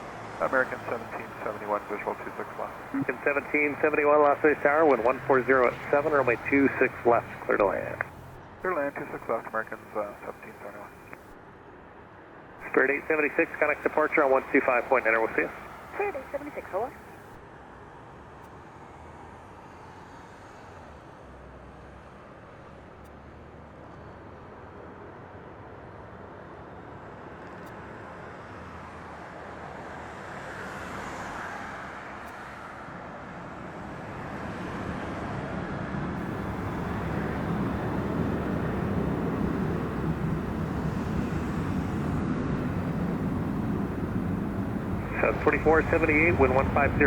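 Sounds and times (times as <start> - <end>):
jet engines roaring: 0.4 - 11.3, 12.6 - 17.4, 36.2 - 47.0.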